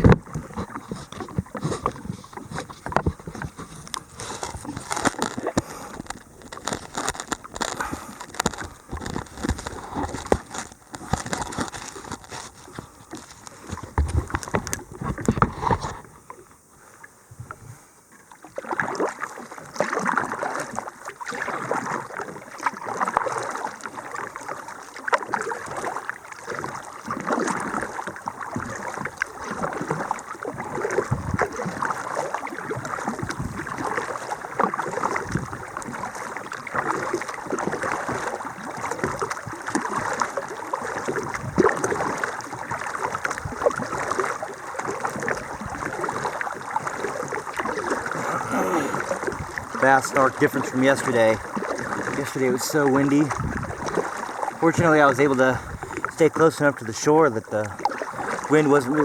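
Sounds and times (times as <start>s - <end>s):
paddle splashing in water: 0.0s - 59.0s
water dripping off paddle: 57.5s - 59.0s.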